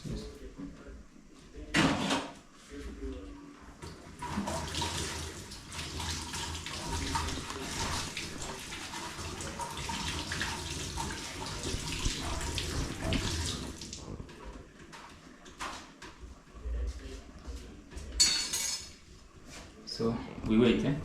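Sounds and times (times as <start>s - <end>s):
water running from a tap: 3.8s - 14.2s.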